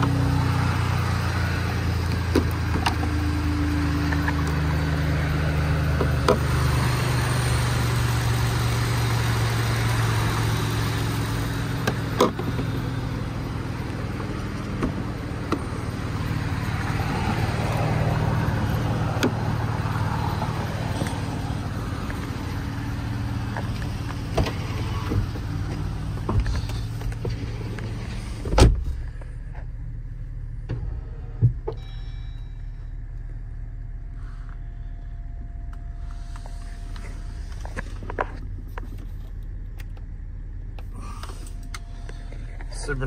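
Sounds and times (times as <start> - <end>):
car engine idling: 0.0 - 43.0
car door shutting: 14.2 - 15.8, 23.4 - 29.7, 30.6 - 32.3
faint steady tone: 30.8 - 38.0, 40.1 - 43.0.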